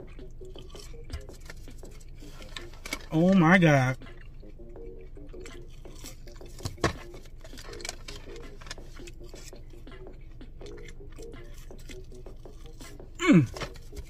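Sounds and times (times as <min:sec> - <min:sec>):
man chewing with mouth clicks: 0:00.0 - 0:14.0.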